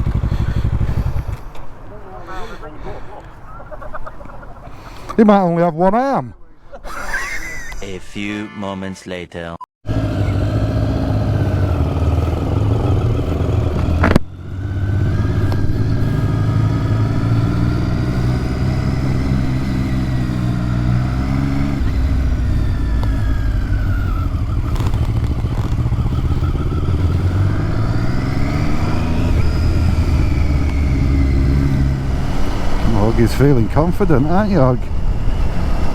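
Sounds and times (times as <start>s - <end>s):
motorcycle engine revving: 0.0s - 2.6s, 9.8s - 35.9s.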